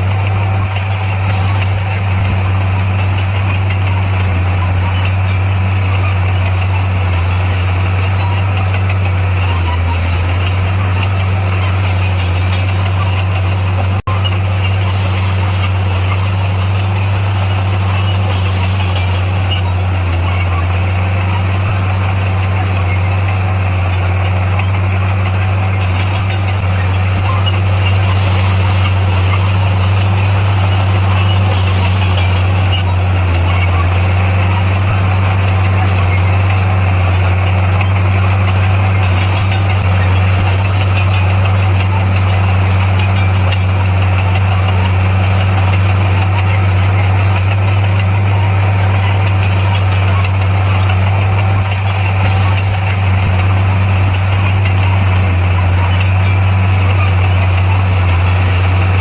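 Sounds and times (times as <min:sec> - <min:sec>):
heavy machine engine drone: 0:00.0 - 0:59.0.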